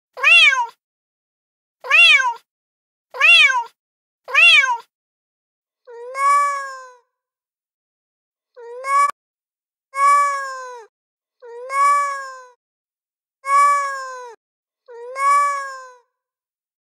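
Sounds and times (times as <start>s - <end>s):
recorded cat meows: 0.1s - 0.8s, 1.8s - 2.5s, 3.1s - 4.9s, 5.8s - 7.1s, 8.5s - 9.2s, 9.9s - 12.6s, 13.4s - 16.1s.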